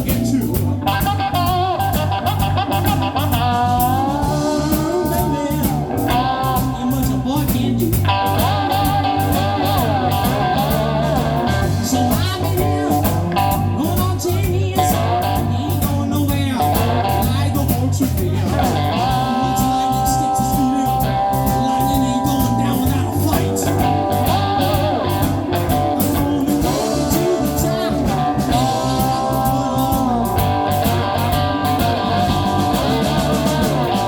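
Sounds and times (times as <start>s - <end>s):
person singing: 0.0s - 34.0s
slide guitar: 0.0s - 34.0s
steady beat: 0.0s - 34.0s.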